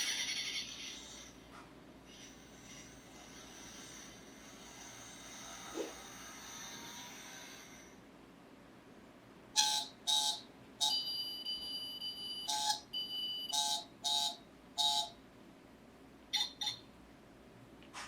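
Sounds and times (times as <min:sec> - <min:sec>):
high-pitched mechanical whine: 0:00.0 - 0:08.1.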